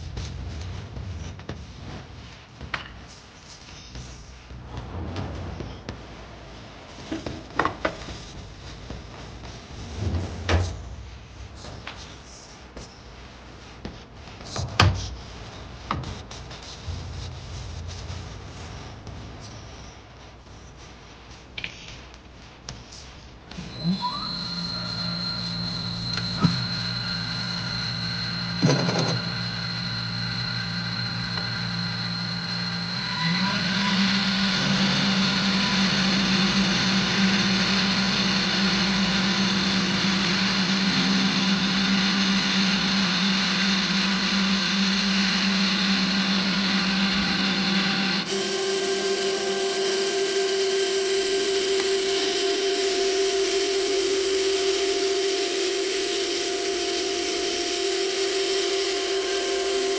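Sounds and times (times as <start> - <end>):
metal lathe humming: 23.5 - 59.9.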